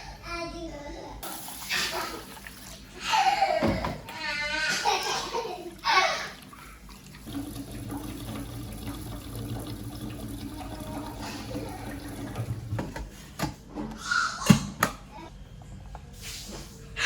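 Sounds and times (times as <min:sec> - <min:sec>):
water running: 0:01.2 - 0:13.2.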